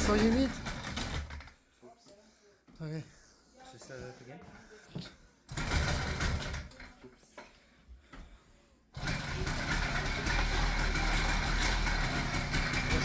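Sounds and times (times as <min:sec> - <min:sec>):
two-stroke engine starting and buzzing: 0:00.0 - 0:01.5, 0:05.5 - 0:06.9, 0:09.0 - 0:13.0.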